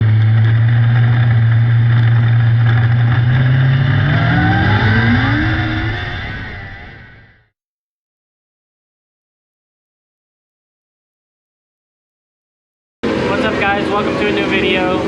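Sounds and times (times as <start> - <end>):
race car engine revving: 0.0 - 7.4, 13.0 - 15.0.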